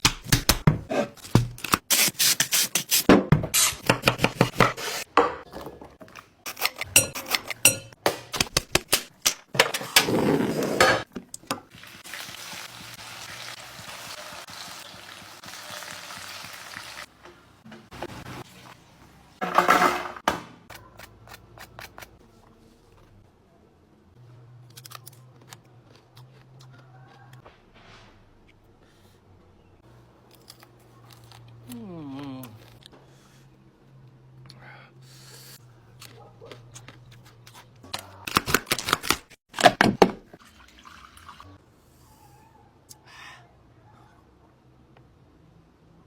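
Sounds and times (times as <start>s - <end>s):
utensils and cookware knocking: 6.6s - 9.8s
food sizzling in frying: 11.6s - 17.1s.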